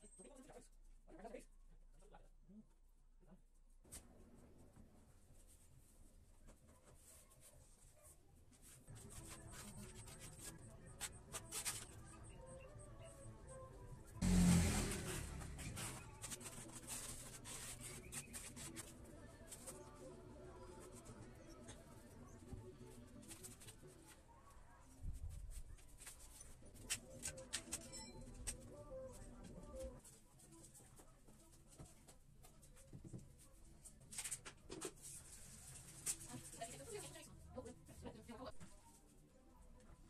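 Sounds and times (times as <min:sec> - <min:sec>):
faint clicks and scrapes: 0:15.0 - 0:37.3.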